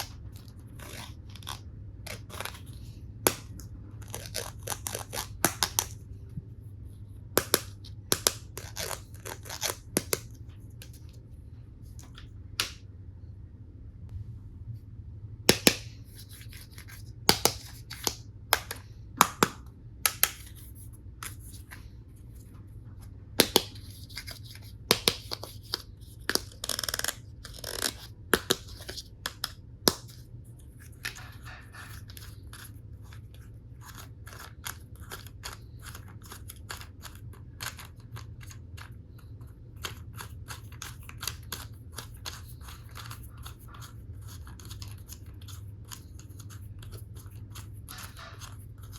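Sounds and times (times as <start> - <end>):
plastic toy pieces clacking: 24.9 - 30.1.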